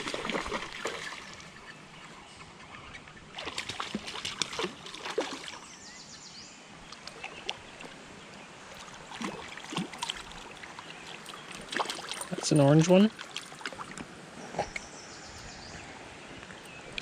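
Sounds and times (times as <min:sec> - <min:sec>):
creek running: 0:00.0 - 0:17.0
short sharp clicks and splashes: 0:03.4 - 0:05.6, 0:09.1 - 0:10.5, 0:11.2 - 0:14.1.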